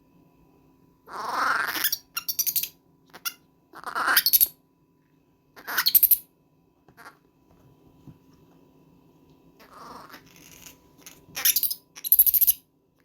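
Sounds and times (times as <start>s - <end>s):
baby monkey screaming: 1.1s - 4.6s, 5.6s - 6.2s, 7.0s - 7.2s, 9.6s - 12.6s.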